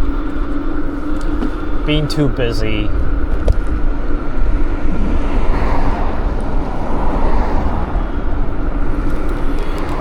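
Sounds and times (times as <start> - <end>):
road noise rumble: 0.0 - 10.0
wind buffeting microphone: 3.0 - 10.0.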